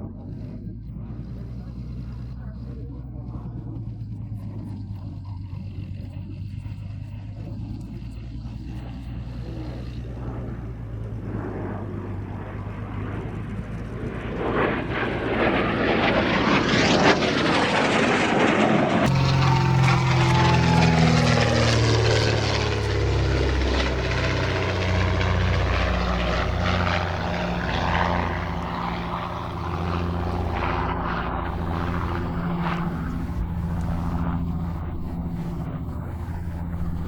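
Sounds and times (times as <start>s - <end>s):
propeller aircraft passing: 0.0s - 37.0s.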